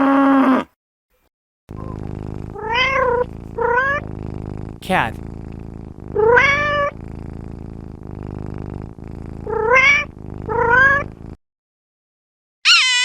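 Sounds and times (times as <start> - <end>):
cat purring: 1.7 - 11.4
cat meowing: 12.7 - 13.0.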